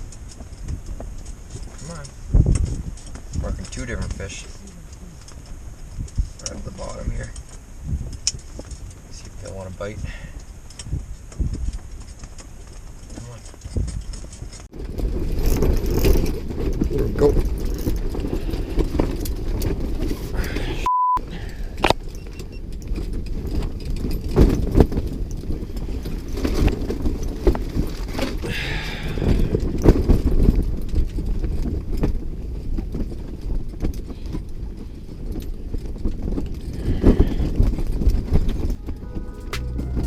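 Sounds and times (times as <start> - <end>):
wind buffeting microphone: 0.0 - 12.2, 21.6 - 40.0
short beep: 20.8 - 21.2, 38.7 - 40.0
knocks and clicks: 38.6 - 40.0.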